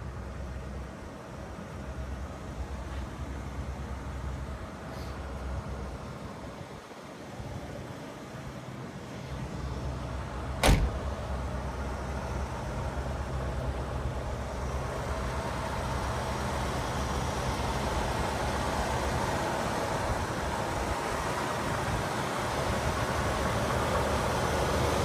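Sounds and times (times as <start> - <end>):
road noise: 0.0 - 25.0
car engine rumbling: 9.2 - 25.0
sharp thump: 10.6 - 11.2.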